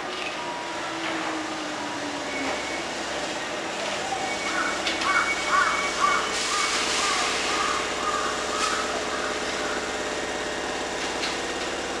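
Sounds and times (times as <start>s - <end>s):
train humming: 0.0s - 12.0s
train wheels squealing: 2.1s - 3.1s.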